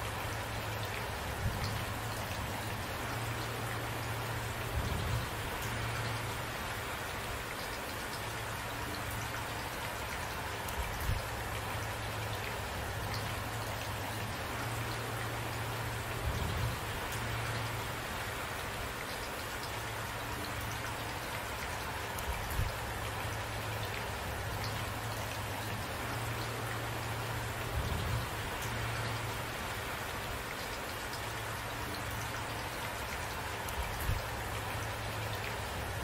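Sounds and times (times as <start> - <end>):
steady rain pattering: 0.0 - 36.0.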